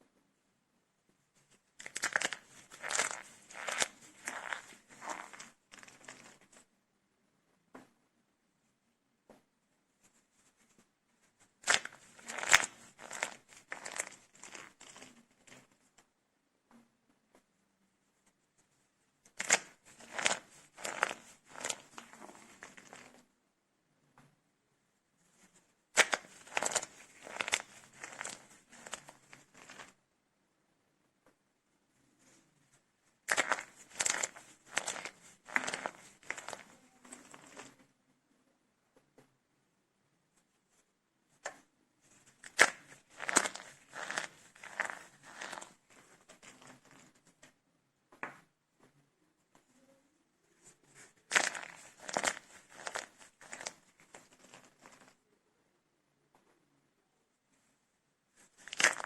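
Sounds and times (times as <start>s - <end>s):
soap cups crunching by hand: 1.8s - 6.4s, 11.6s - 15.1s, 19.3s - 23.1s, 26.0s - 30.0s, 33.3s - 37.7s, 42.4s - 47.0s, 51.3s - 55.1s, 58.5s - 59.0s.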